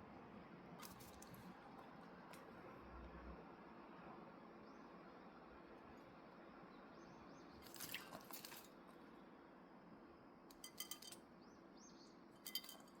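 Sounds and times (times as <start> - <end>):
parrot splashing in water bowl: 7.6 - 8.7
ringing clatter of bowl: 10.5 - 11.2, 12.4 - 13.0.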